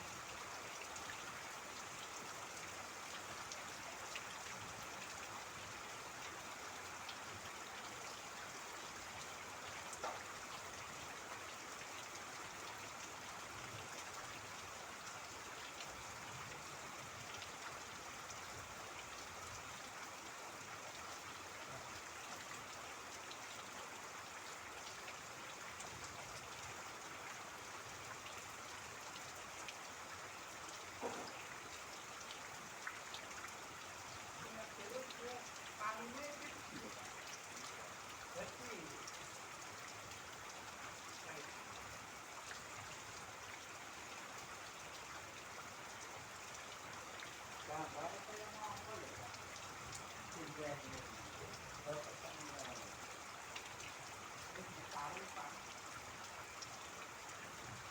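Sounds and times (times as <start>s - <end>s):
steady rain: 0.0s - 57.9s
trickling water: 0.0s - 57.9s
water drips: 24.5s - 57.9s.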